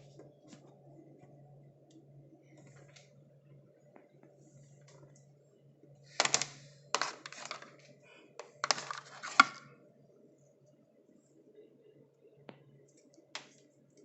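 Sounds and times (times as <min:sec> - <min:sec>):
hands handling packaging: 0:06.2 - 0:07.8, 0:08.4 - 0:09.6.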